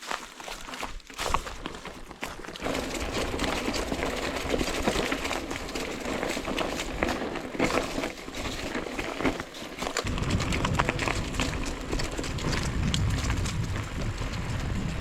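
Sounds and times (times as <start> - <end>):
bike rattling: 0.0 - 15.0
tyres crunching on rocky dirt: 0.0 - 15.0
low rumble: 10.0 - 15.0.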